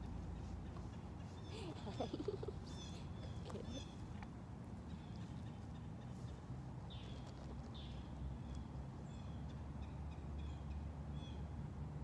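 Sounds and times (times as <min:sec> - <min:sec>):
swooping bird calls: 0:00.0 - 0:04.2
small birds chirping: 0:00.0 - 0:11.4.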